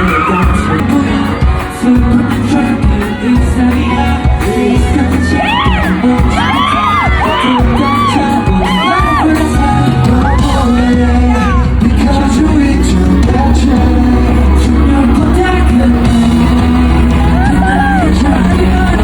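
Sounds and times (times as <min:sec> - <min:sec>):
person singing: 0:00.0 - 0:19.0
pop music with heavy bass beat: 0:00.0 - 0:19.0
crowd whooping: 0:03.6 - 0:11.7, 0:16.5 - 0:19.0.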